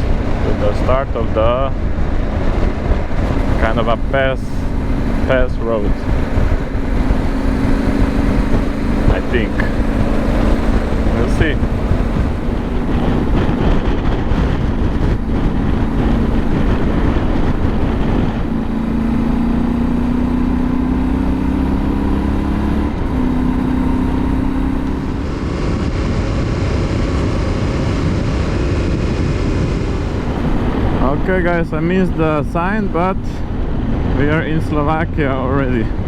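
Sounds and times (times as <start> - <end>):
motorcycle engine running: 0.0 - 36.0
wind rushing: 0.0 - 36.0.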